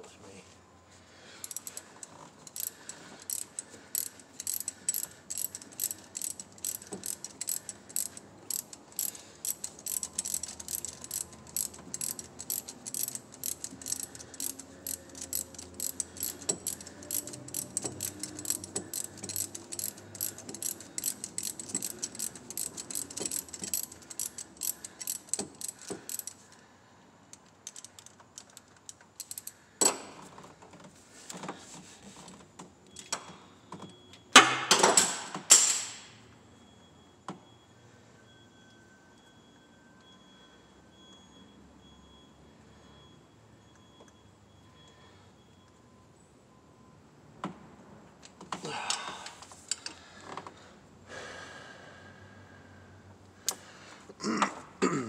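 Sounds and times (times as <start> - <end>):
socket ratchet clicking: 1.4 - 26.4, 27.3 - 29.6.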